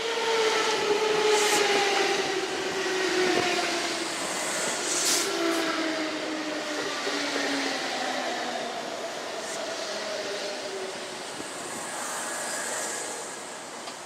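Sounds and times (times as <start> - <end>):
train rolling noise: 0.0 - 14.0
brief hisses: 4.4 - 5.3.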